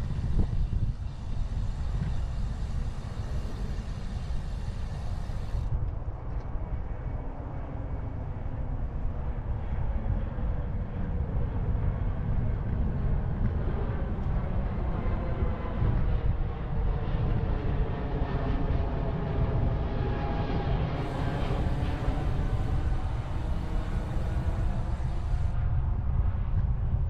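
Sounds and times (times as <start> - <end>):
bicycle ride noise: 0.0 - 6.0, 21.0 - 25.6
wind on microphone: 0.0 - 27.0.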